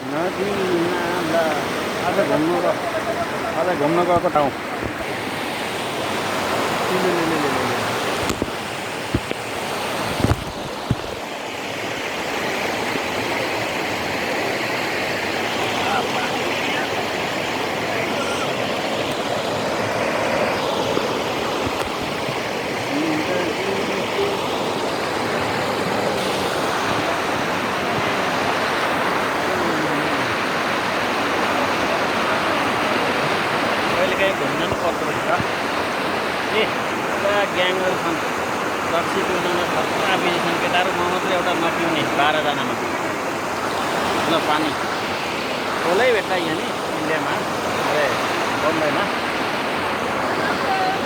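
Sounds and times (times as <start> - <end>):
faint voices: 0.0 - 5.3, 15.4 - 35.8, 36.5 - 51.0
stream water rushing: 0.0 - 51.0.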